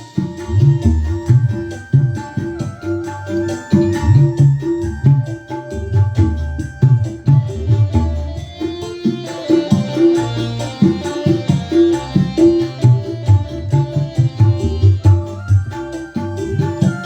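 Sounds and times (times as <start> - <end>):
hand-drum rhythm: 0.0 - 17.0
held keyboard melody: 0.0 - 17.0
keyboard dance music: 0.0 - 17.0.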